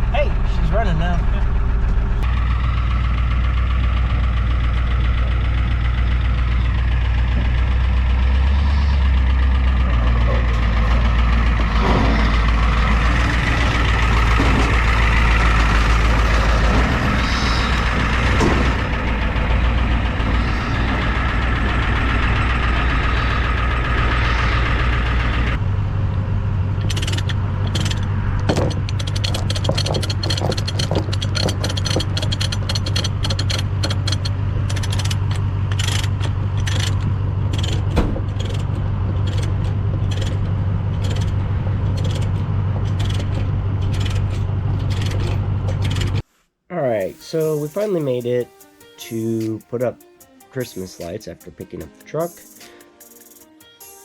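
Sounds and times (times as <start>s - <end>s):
diesel truck engine rumbling: 0.0s - 53.8s
rapid clicks: 26.8s - 46.2s.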